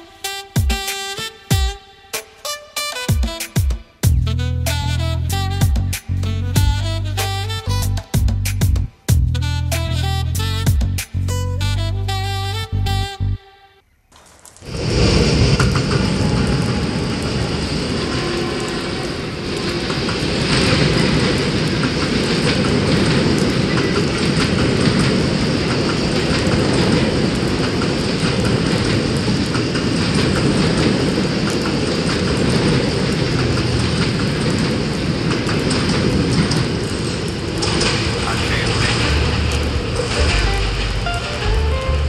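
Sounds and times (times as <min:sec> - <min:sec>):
train wheels on rails: 0:14.2 - 0:42.0.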